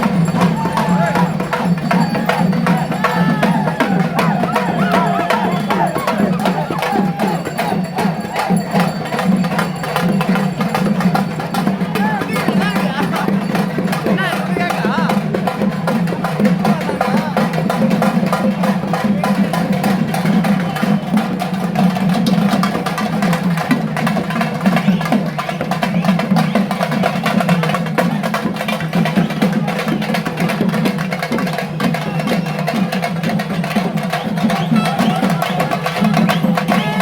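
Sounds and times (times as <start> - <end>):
crowd voices: 0.0 - 30.8, 31.4 - 37.0
drums in a fast beat: 0.0 - 37.0.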